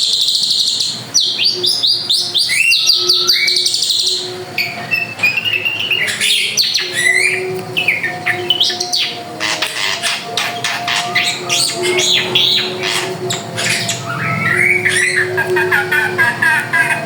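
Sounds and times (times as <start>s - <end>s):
drongo singing: 0.0s - 17.0s.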